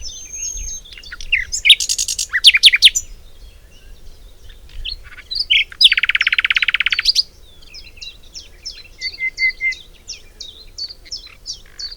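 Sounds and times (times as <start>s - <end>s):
high bird chirps: 0.0s - 3.0s
rapid bird trill: 0.0s - 3.0s.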